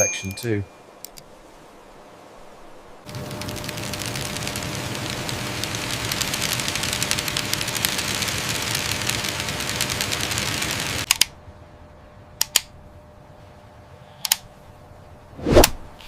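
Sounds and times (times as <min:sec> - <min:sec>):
rapid mechanical clattering: 0:03.1 - 0:11.1
sharp clicks: 0:03.3 - 0:11.4, 0:12.4 - 0:12.7, 0:14.2 - 0:14.5.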